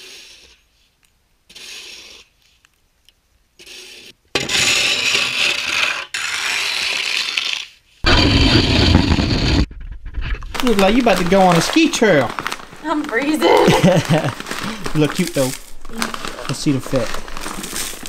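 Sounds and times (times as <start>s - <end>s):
snow shovel scraping pavement: 8.0s - 9.7s, 10.6s - 15.6s.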